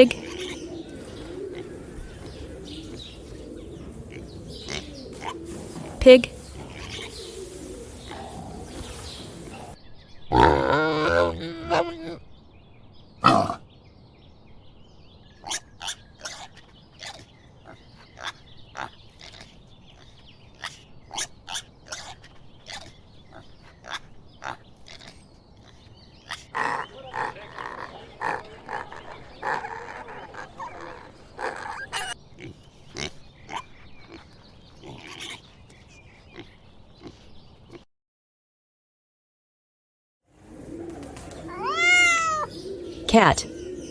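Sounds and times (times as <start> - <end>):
pigs grunting: 0.0 - 12.2, 13.2 - 13.6, 20.6 - 35.4, 40.4 - 43.9.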